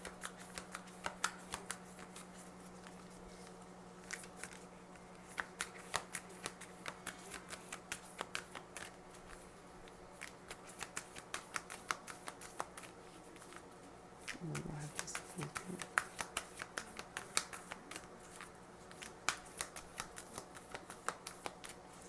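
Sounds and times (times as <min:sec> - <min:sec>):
cards being shuffled: 0:00.0 - 0:09.5, 0:10.2 - 0:22.0.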